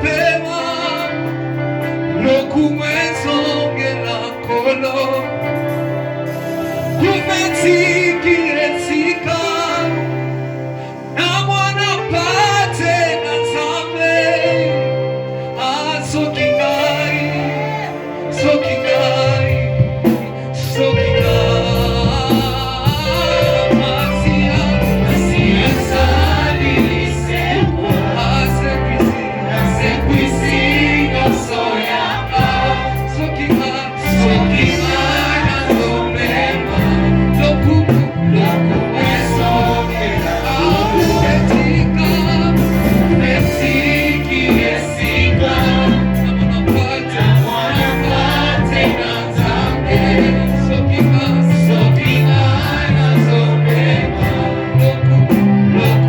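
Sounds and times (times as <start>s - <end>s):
gospel voices singing: 0.0s - 56.0s
deep bass line: 16.0s - 56.0s.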